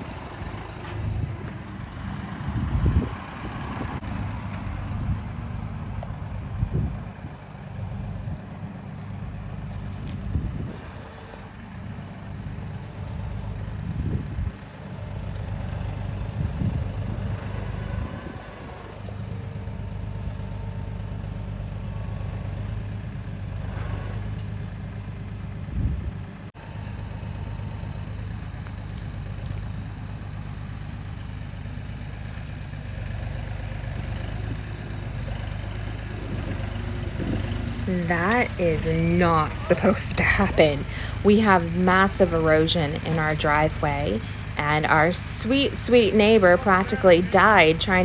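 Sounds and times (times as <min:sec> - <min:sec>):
tractor engine running: 0:00.0 - 0:48.0.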